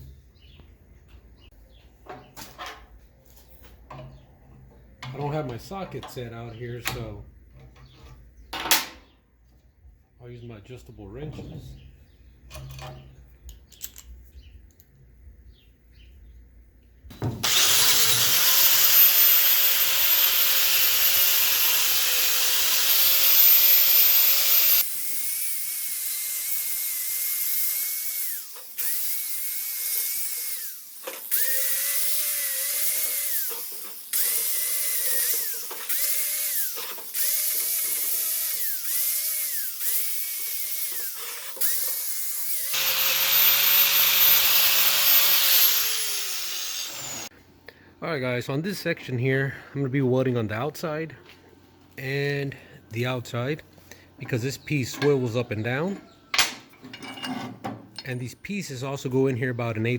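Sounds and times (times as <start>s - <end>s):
power tool motor spinning: 17.4s - 47.3s.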